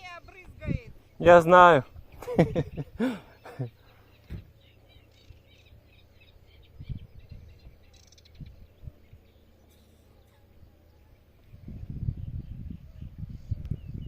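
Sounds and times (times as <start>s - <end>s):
low steady hum: 0.0s - 14.0s
small birds chirping: 0.0s - 14.0s.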